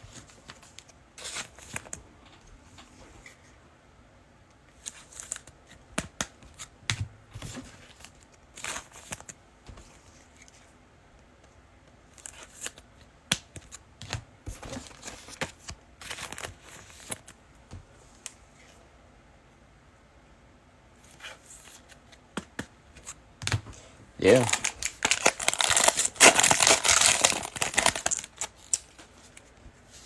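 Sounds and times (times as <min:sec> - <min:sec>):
trading cards rustling and clicking: 0:12.1 - 0:17.4, 0:21.7 - 0:29.6.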